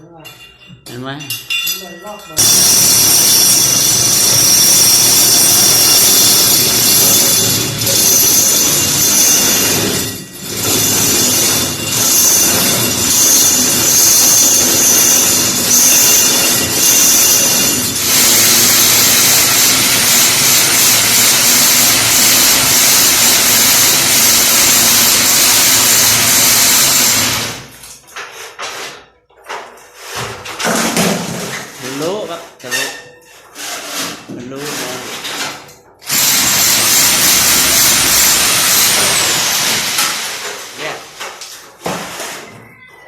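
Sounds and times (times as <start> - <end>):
power drill boring through brick: 2.4 - 27.7, 36.0 - 40.8.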